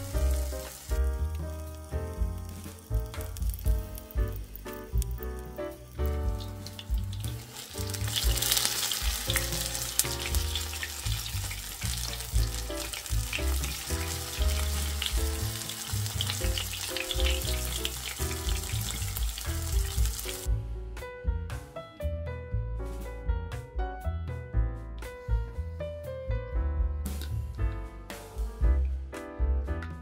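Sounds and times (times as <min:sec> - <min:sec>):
fritters sizzling in hot oil: 0:00.0 - 0:20.5
background music: 0:00.0 - 0:30.0.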